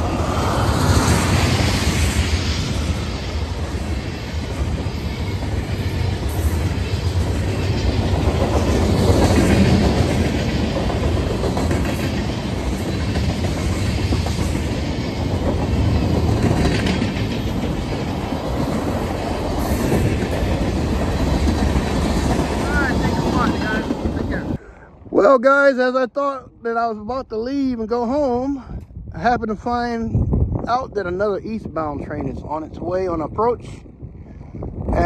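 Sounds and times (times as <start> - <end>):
steel wheels rumbling on rail: 0.0 - 25.1.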